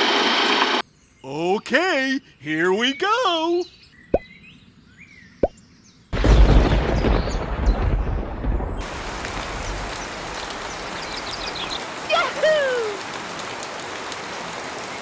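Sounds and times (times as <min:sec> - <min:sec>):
rumbling thunderclap: 0:06.2 - 0:11.6
heavy rain: 0:06.2 - 0:15.0.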